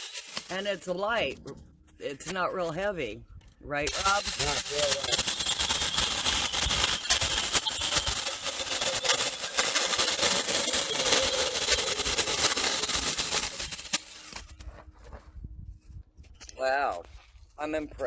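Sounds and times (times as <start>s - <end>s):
electric chainsaw cutting log: 4.0s - 14.0s.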